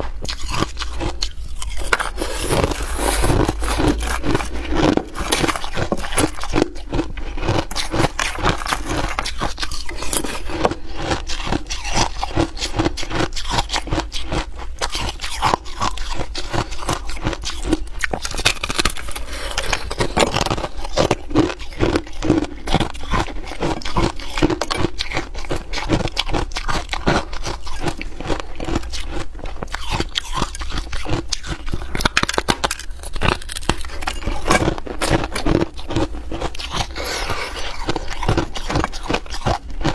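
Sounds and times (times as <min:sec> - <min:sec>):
person chewing hard ice: 0:00.0 - 0:39.9.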